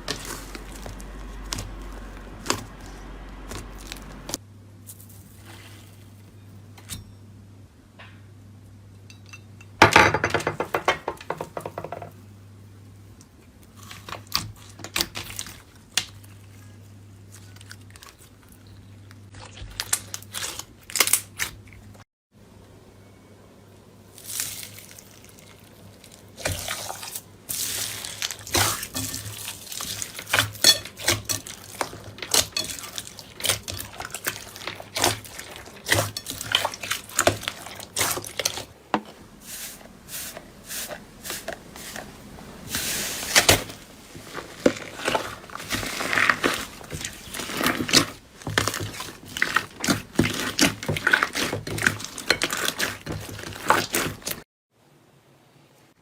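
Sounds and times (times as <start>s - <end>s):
low steady hum: 0.0s - 20.3s.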